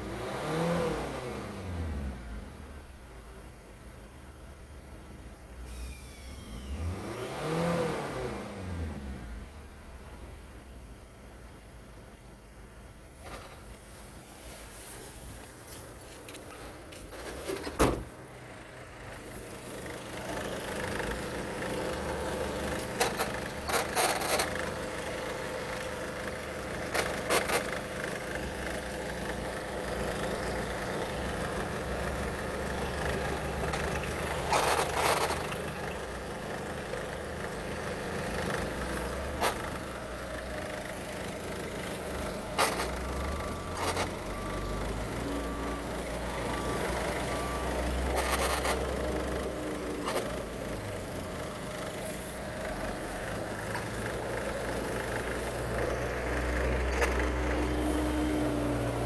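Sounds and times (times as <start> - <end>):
diesel engine droning: 13.0 - 59.0.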